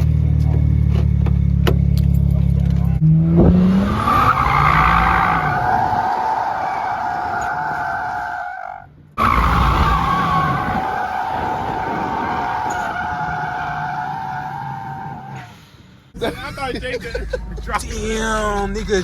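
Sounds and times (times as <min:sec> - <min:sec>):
car engine running hard: 0:00.0 - 0:07.6
car tyres squealing: 0:03.0 - 0:16.2.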